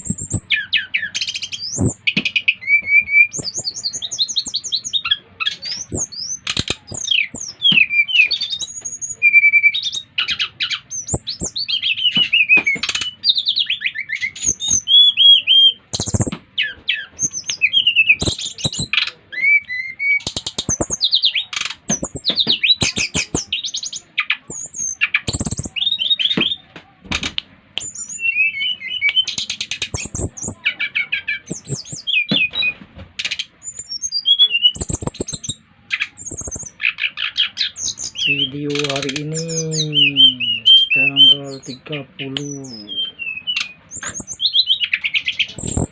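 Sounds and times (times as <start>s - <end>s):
bird singing whistled notes: 0.0s - 26.6s, 27.8s - 45.9s
sharp bird clicks: 3.3s - 4.8s, 5.6s - 8.9s, 10.3s - 15.0s, 15.9s - 16.4s, 17.2s - 32.6s, 34.6s - 39.6s, 43.5s - 45.9s.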